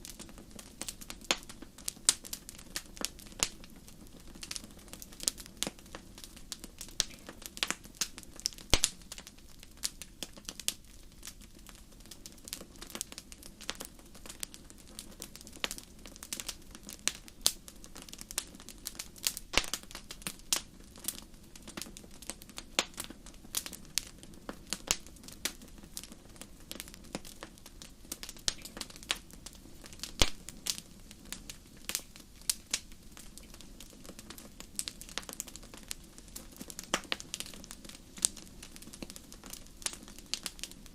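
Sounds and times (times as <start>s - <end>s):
fire crackling: 0.0s - 40.9s.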